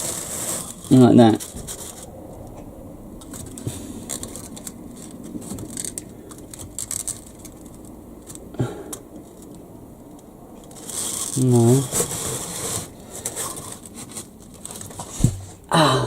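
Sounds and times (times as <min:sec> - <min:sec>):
model track pieces clicking: 0:03.2 - 0:11.4.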